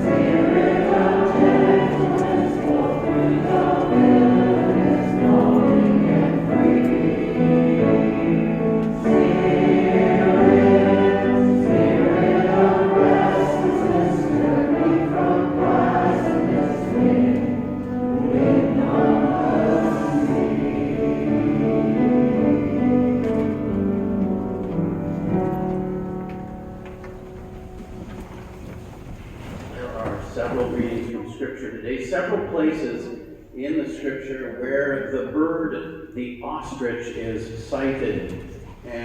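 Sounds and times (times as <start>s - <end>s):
group singing a hymn: 0.0s - 23.9s
musical accompaniment: 0.0s - 29.4s.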